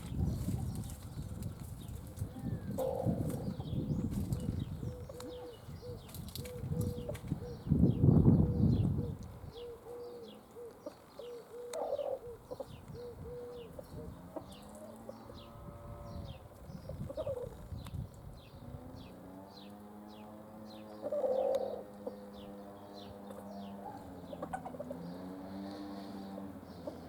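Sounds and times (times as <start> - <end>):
low cooing: 2.3 - 3.8, 4.4 - 7.7, 8.3 - 16.3, 21.0 - 22.4
bird chirps: 2.4 - 27.0.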